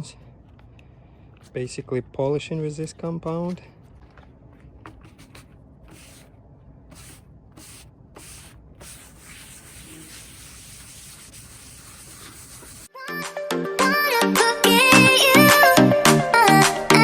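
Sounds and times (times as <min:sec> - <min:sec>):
pad rubbing on plastic: 0:04.8 - 0:12.9.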